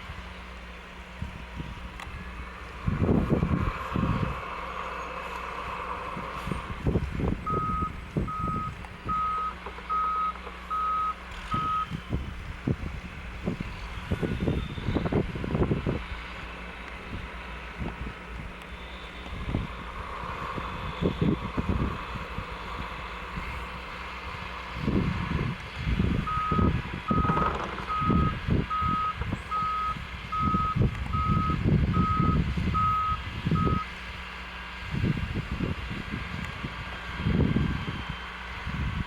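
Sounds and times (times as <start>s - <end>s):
truck engine running: 0.0s - 39.0s
wind buffeting microphone: 1.2s - 4.6s, 5.6s - 9.4s, 11.4s - 33.9s, 34.8s - 39.0s
truck reversing alarm beeping: 7.3s - 12.2s, 26.2s - 34.0s.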